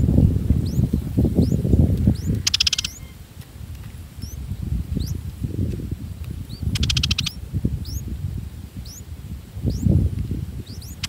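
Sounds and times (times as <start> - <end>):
small birds chirping: 0.0 - 8.1, 8.7 - 11.0
fast rattling bird trill: 0.6 - 3.2, 6.5 - 8.0, 10.6 - 11.0.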